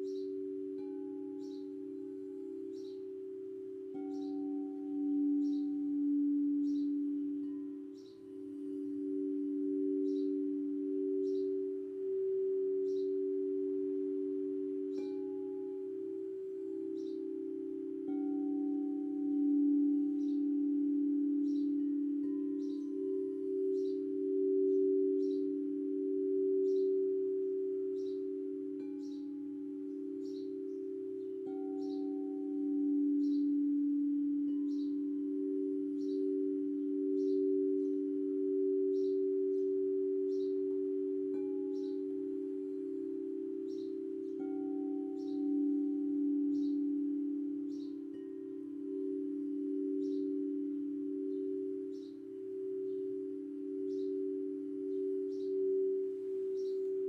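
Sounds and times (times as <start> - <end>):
bird chirping: 0.0 - 57.0
singing bowls humming: 0.0 - 57.0.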